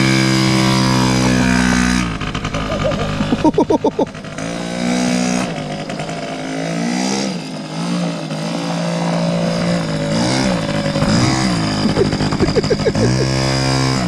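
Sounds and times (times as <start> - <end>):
two-stroke engine running: 0.0 - 14.0.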